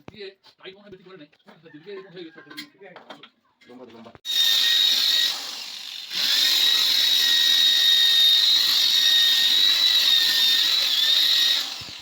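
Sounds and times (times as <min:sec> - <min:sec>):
power drill whining and grinding: 0:04.3 - 0:12.0.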